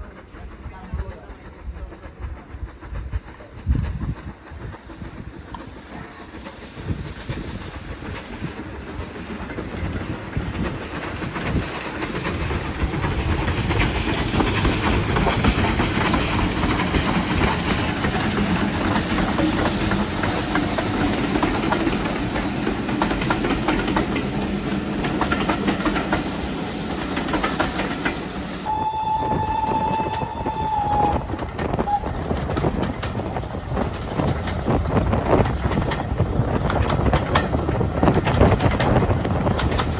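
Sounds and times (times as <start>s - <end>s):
train rumbling on rails: 0.0s - 39.9s
train whistle: 28.6s - 32.2s.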